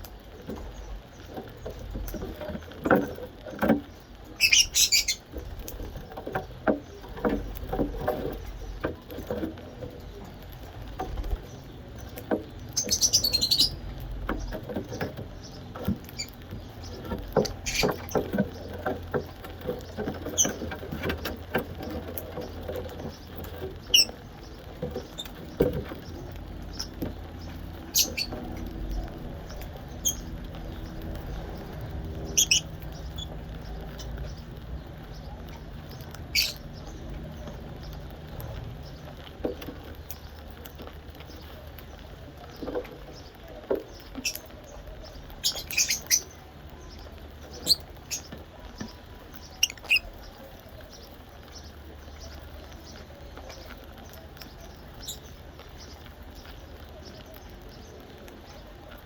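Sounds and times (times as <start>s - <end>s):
parrot chirps: 4.4s - 5.2s, 32.3s - 33.3s, 49.6s - 50.1s.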